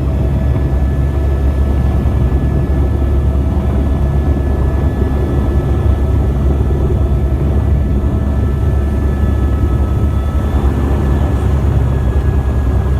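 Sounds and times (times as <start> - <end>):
faint constant whine: 0.0 - 12.9
helicopter rotor and engine rumble: 0.0 - 12.9.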